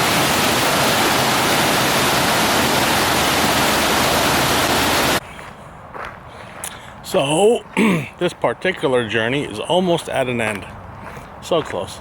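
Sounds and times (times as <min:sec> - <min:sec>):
rush of flowing water: 0:00.0 - 0:05.2.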